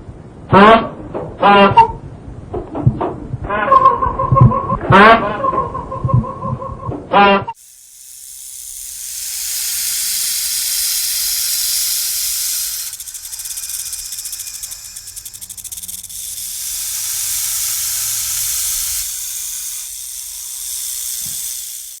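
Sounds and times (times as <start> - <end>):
snake hissing: 7.6 - 22.0.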